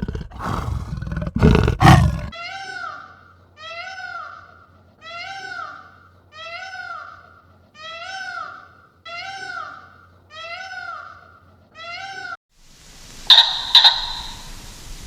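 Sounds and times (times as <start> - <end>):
animal high calls: 0.0 - 2.3.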